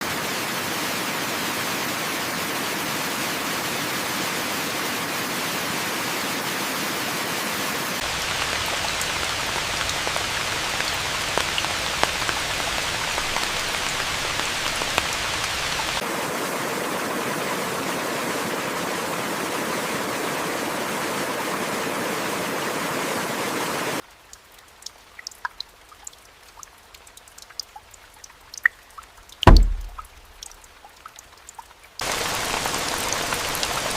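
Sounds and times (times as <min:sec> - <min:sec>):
heavy rain: 0:00.0 - 0:30.8, 0:32.0 - 0:33.9
small drips and ticks: 0:08.0 - 0:16.0, 0:24.0 - 0:33.9.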